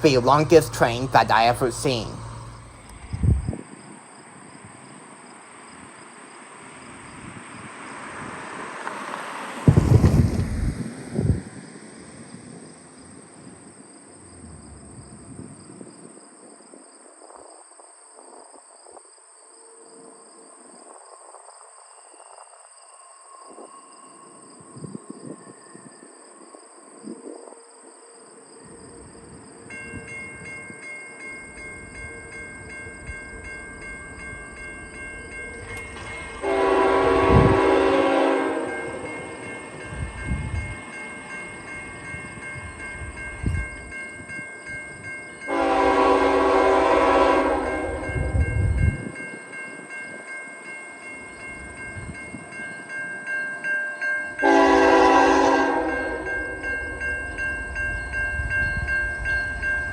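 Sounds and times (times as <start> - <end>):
locomotive air horn blasts: 36.4 - 39.4, 45.5 - 48.4, 54.4 - 56.7.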